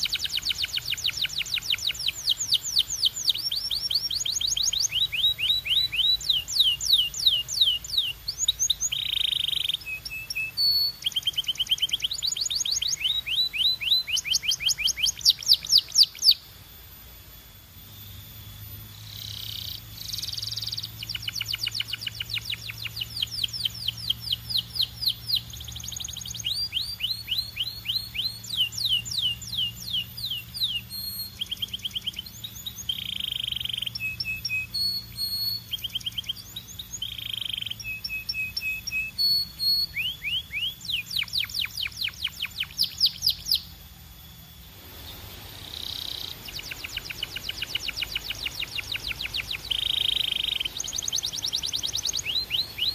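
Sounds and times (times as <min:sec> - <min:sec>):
canary singing: 0:00.0 - 0:16.5, 0:18.0 - 0:52.9
faint low hum: 0:00.0 - 0:52.9.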